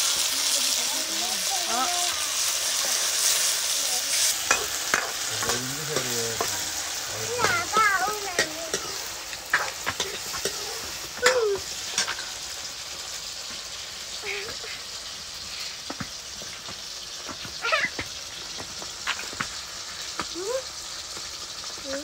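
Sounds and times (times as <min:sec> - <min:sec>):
vegetables sizzling in hot oil: 0:00.0 - 0:22.0
metal ladle scraping a pan: 0:02.1 - 0:12.4.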